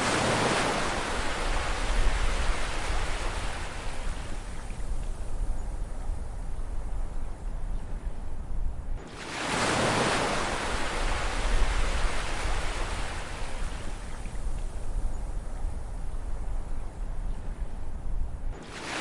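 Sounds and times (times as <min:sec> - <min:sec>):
low rumble of sea: 0:00.0 - 0:19.0
ocean wave breaking: 0:18.6 - 0:19.0.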